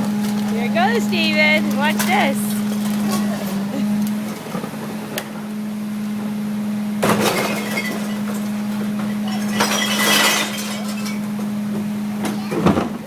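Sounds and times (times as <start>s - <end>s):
truck humming: 0.0s - 13.0s
glass bottles crashing and clinking: 7.0s - 11.6s.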